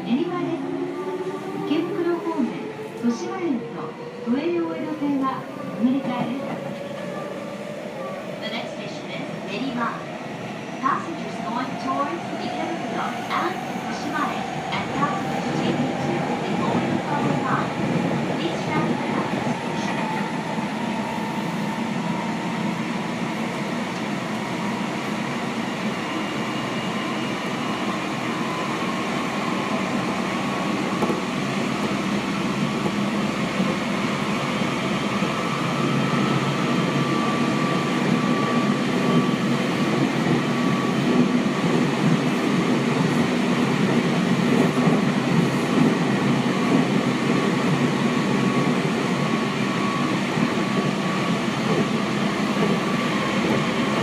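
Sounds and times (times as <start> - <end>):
train wheels on rail: 10.8 - 54.0.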